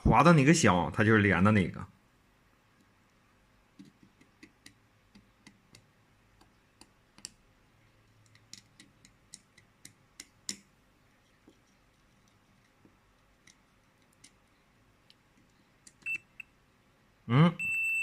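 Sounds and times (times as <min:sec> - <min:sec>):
probe tip clicking on circuit board: 0:08.2 - 0:10.7.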